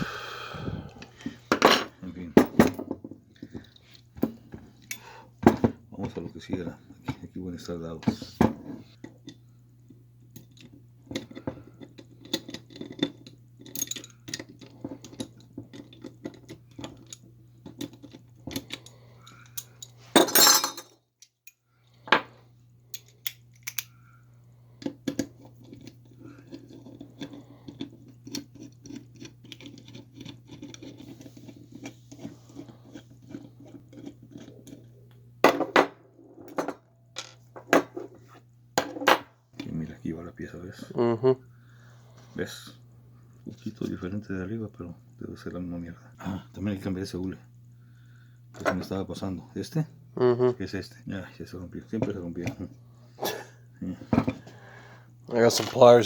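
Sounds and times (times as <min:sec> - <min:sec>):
steady low hum: 0:00.0 - 0:56.0
metal parts and tools clinking: 0:12.2 - 0:17.2, 0:17.8 - 0:21.6.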